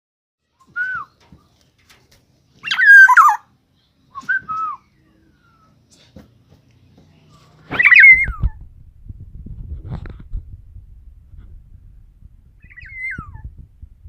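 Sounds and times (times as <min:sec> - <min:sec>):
bird whistling calls: 0:02.6 - 0:03.4, 0:07.7 - 0:08.6, 0:12.6 - 0:13.5.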